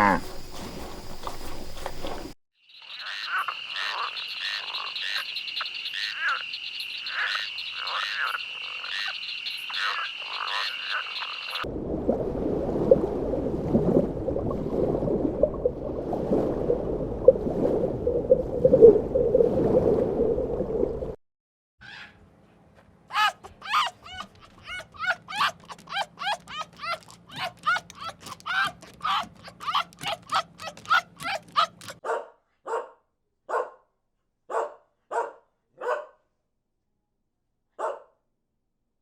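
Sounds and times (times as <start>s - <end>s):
frogs croaking: 0.0s - 0.4s, 2.6s - 11.7s.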